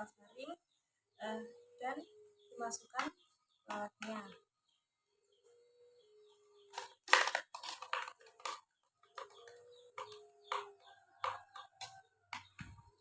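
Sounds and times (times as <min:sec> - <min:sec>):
handling crackles and rustles: 0:06.7 - 0:10.7.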